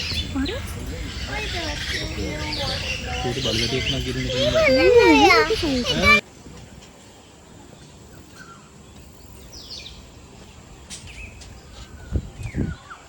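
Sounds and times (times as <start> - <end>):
birds calling: 0.0 - 6.2
steady background hum: 0.0 - 12.3.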